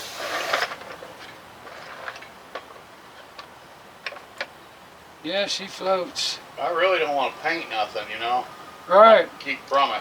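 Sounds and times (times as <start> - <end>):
brief hiss: 0.0 - 0.8.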